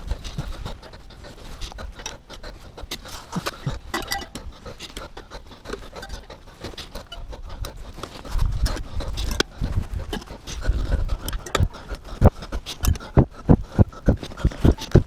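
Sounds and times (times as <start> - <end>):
scraping and rubbing on metal: 2.9 - 13.0.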